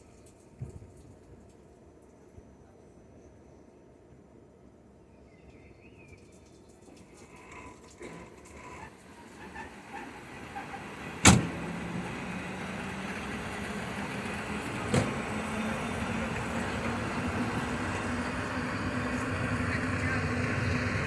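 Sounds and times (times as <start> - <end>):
train running with rising hum: 3.2 - 21.0
train clanking: 6.8 - 21.0.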